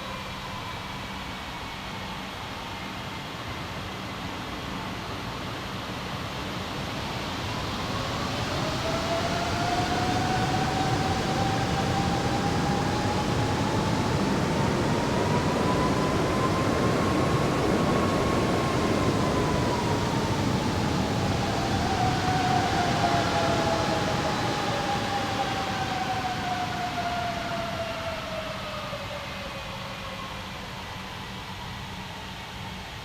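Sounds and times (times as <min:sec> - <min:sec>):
jet engine whine: 0:00.0 - 0:33.0
jet engines rumbling: 0:04.6 - 0:31.5.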